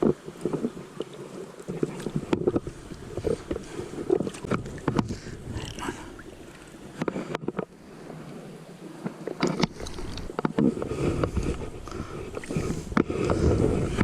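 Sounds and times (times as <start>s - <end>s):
river water rumble: 0.0s - 14.0s
wind buffeting microphone: 2.2s - 6.4s, 9.6s - 14.0s.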